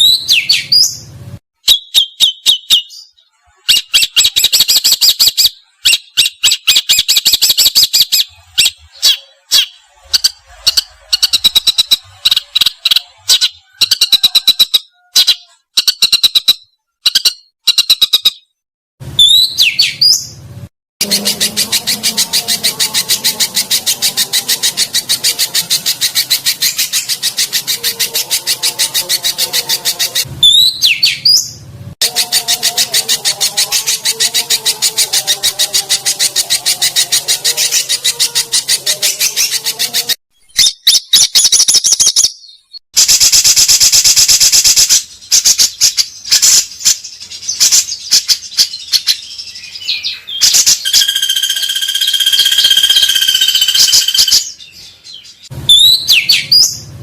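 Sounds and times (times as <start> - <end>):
songbird fast chirping: 0.0 - 18.6, 21.0 - 42.8, 44.4 - 56.9
bird whistled notes: 21.0 - 31.4, 49.5 - 54.5, 55.7 - 56.8
birds rapid trills: 21.0 - 42.0, 43.0 - 57.0.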